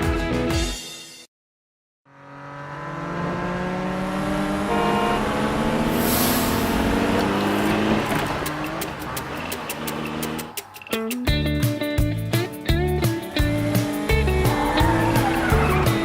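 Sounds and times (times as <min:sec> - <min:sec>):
cartoon car engine revving: 0:02.1 - 0:10.9, 0:13.1 - 0:16.0.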